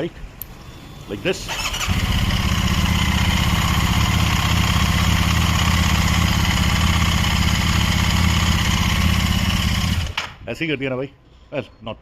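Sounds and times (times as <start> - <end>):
motorcycle engine fast idle: 1.5 - 10.2.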